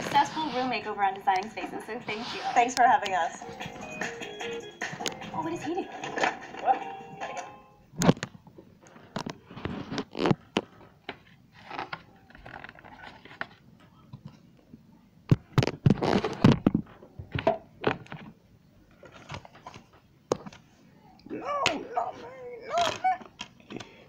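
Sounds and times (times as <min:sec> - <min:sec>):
scraping and rustling: 0:00.0 - 0:03.7, 0:08.0 - 0:13.6, 0:15.6 - 0:20.8.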